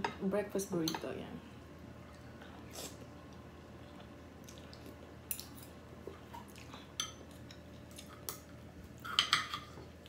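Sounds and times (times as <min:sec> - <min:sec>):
cutlery clinking on plate: 0:09.0 - 0:09.7.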